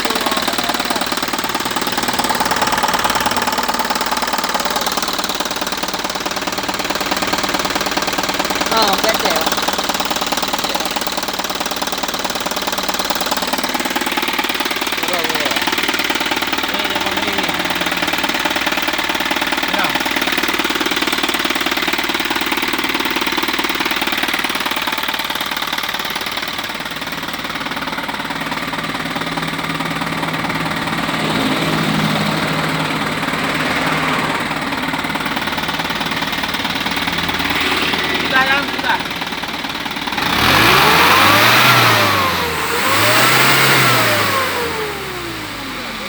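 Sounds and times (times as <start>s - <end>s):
diesel truck engine running: 0.0s - 46.0s.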